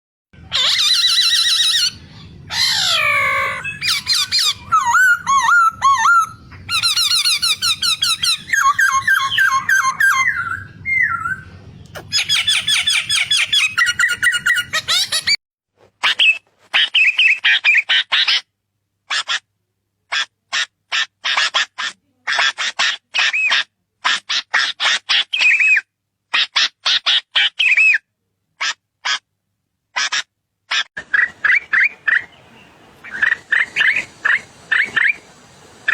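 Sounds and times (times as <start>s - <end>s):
bird calling: 0.5s - 11.4s, 30.7s - 35.9s.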